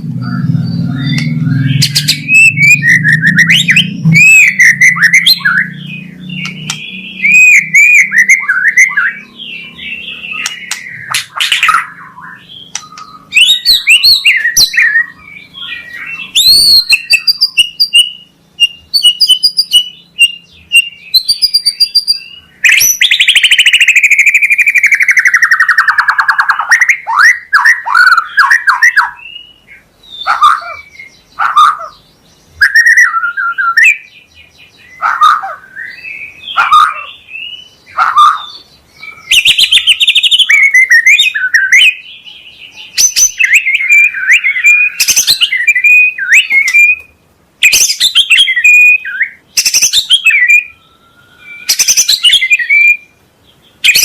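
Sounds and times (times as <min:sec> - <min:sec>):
bird singing varied phrases: 0:00.0 - 0:54.0.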